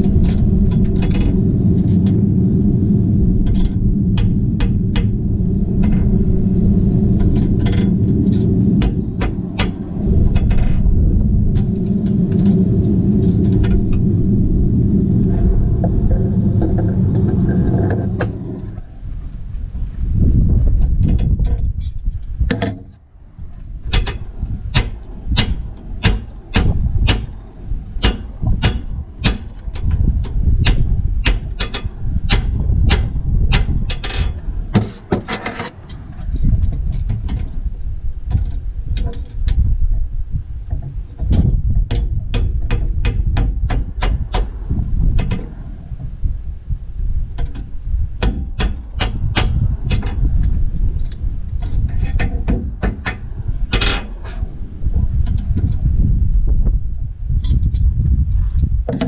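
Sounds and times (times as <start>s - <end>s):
steady low rumble: 0.0s - 59.0s
hammer blows: 23.9s - 27.4s, 28.0s - 35.8s.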